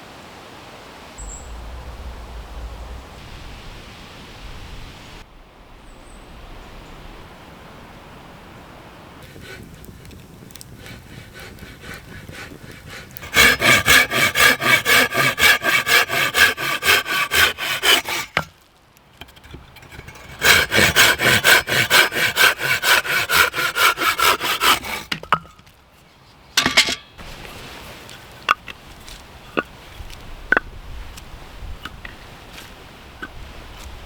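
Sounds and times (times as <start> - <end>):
hand saw cutting wood: 9.4 - 18.5, 19.2 - 25.3
short rasp: 10.8 - 18.5, 19.2 - 25.2.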